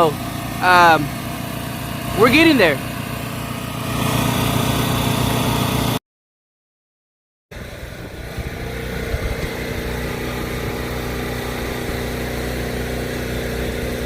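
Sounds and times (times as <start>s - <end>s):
pressure washer engine: 0.0s - 6.0s, 7.5s - 14.0s.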